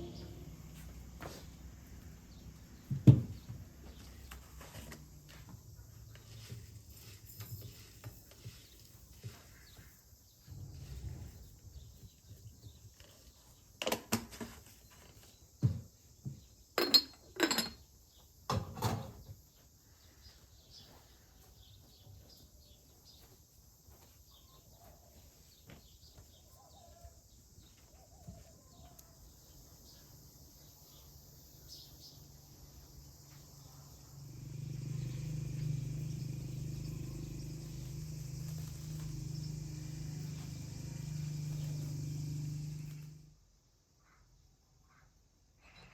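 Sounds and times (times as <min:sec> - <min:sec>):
sharp knocks and clatters: 0:02.9 - 0:03.6.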